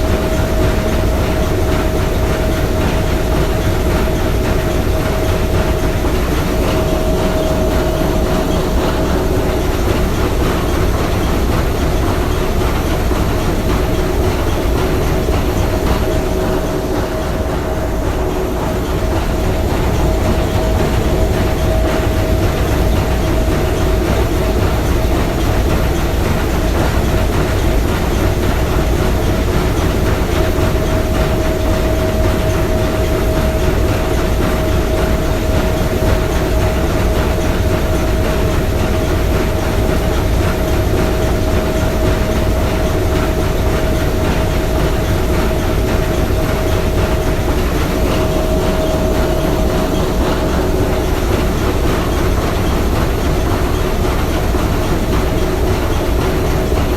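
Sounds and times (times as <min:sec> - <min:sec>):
steam engine low rumble: 0:00.0 - 0:56.9
steady tone: 0:04.0 - 0:25.6, 0:45.6 - 0:56.1.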